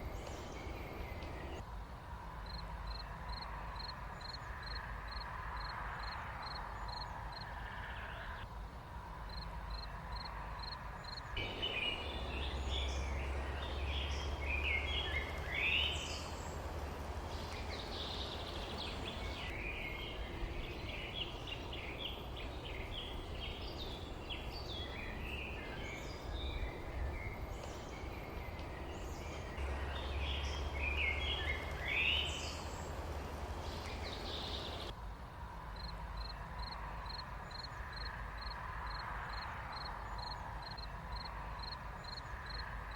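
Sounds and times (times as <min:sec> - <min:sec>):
small birds chirping: 0:00.0 - 0:01.6, 0:09.3 - 0:34.9
low rumble and hiss: 0:00.0 - 0:06.4, 0:07.1 - 0:37.5.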